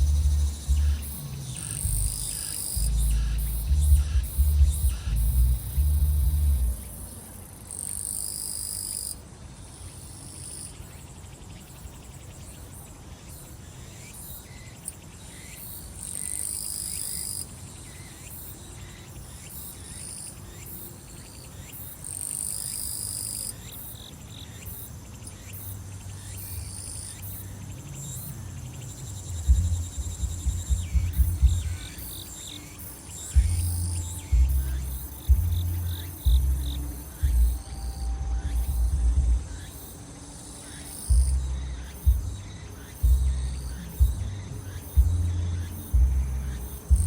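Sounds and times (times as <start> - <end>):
music with thumping bass: 0.0 - 6.8, 29.3 - 32.0, 33.3 - 39.6, 41.1 - 47.0
fast ticking insect chorus: 0.0 - 47.0
insects buzzing song: 0.0 - 47.0.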